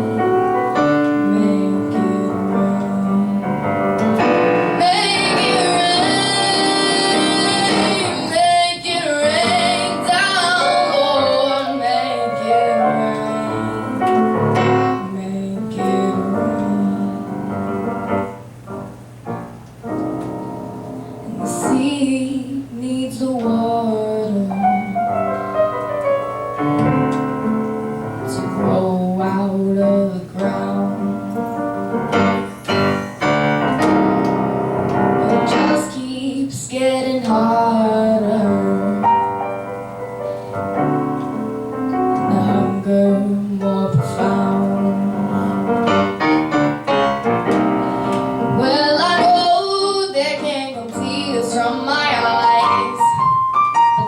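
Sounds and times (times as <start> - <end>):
piano accompaniment: 0.0 - 54.0
girl singing: 0.8 - 17.5, 21.2 - 24.9, 28.3 - 31.6, 35.2 - 39.3, 42.2 - 45.8, 48.4 - 53.4.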